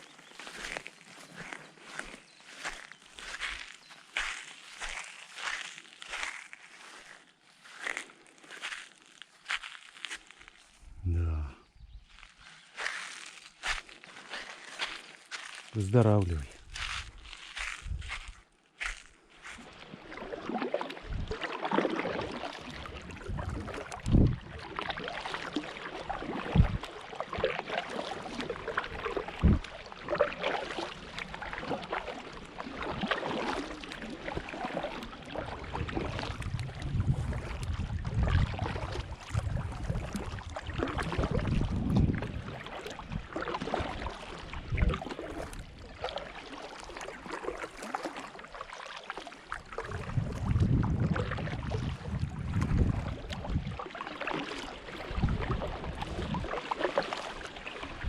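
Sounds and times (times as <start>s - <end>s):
wind gusting on microphone: 16.6s - 18.4s, 21.1s - 21.3s, 23.0s - 24.6s, 26.5s - 26.8s, 29.4s - 29.6s, 35.6s - 43.2s, 49.9s - 53.8s.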